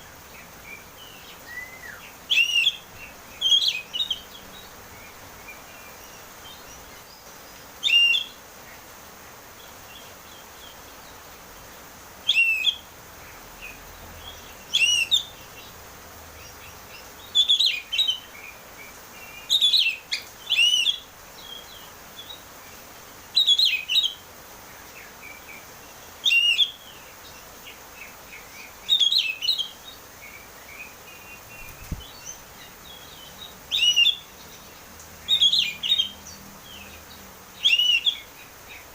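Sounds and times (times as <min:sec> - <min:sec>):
faint steady hiss: 0:00.0 - 0:38.9
bird singing whistled phrases: 0:01.1 - 0:04.2, 0:07.8 - 0:08.4, 0:12.3 - 0:12.8, 0:14.7 - 0:15.3, 0:17.3 - 0:18.3, 0:19.5 - 0:21.0, 0:26.2 - 0:26.8, 0:33.7 - 0:34.3, 0:37.6 - 0:38.3.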